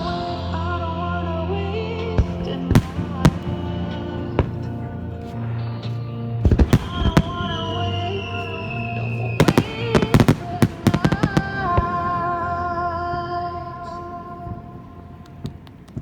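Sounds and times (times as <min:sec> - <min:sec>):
music with long held notes: 0:00.0 - 0:16.0
fireworks bangs: 0:02.1 - 0:05.2, 0:06.4 - 0:16.0.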